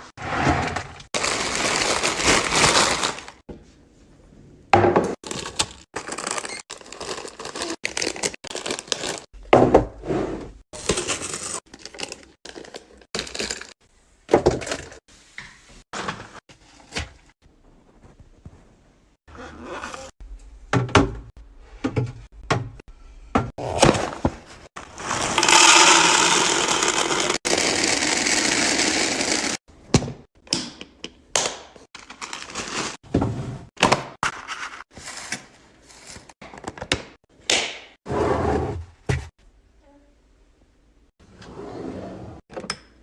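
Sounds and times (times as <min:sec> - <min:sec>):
food packaging being handled: 0:01.2 - 0:03.4, 0:05.2 - 0:09.3.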